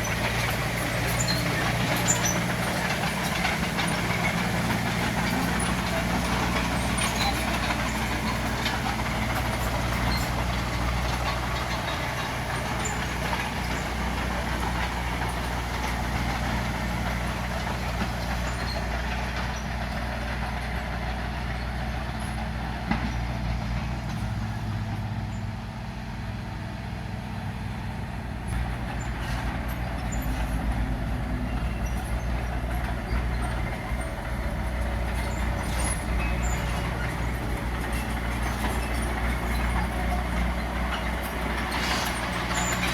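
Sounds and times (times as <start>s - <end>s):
light clanks and rattles: 0.0s - 25.5s, 26.4s - 42.9s
heavy machinery diesel engine: 0.0s - 42.9s.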